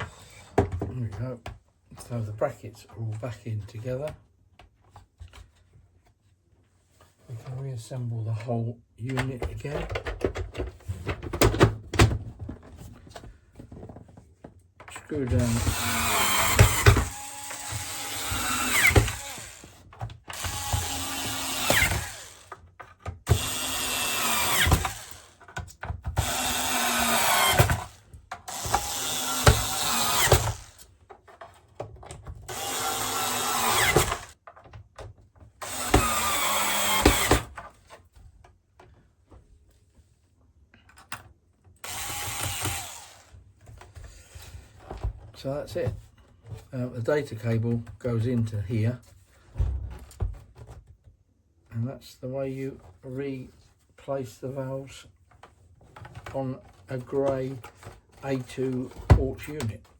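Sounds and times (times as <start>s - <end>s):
power screwdriver driving screws: 15.3s - 22.6s, 23.2s - 25.4s, 26.2s - 30.9s, 32.5s - 34.4s, 35.6s - 37.6s, 41.8s - 43.4s.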